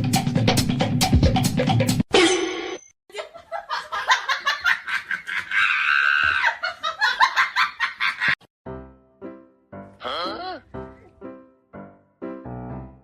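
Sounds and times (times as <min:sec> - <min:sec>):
person laughing hard: 0:03.1 - 0:08.4.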